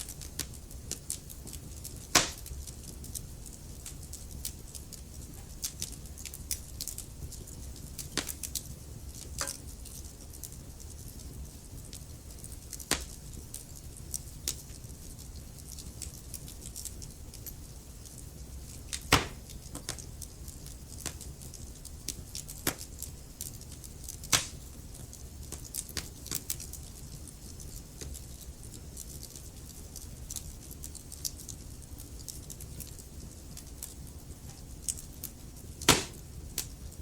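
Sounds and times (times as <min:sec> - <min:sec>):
sharp fire pops: 0:00.0 - 0:10.1, 0:11.8 - 0:13.4, 0:18.0 - 0:21.3, 0:22.0 - 0:23.0, 0:24.2 - 0:24.8, 0:33.6 - 0:36.8
wood fire crackling: 0:00.0 - 0:37.0.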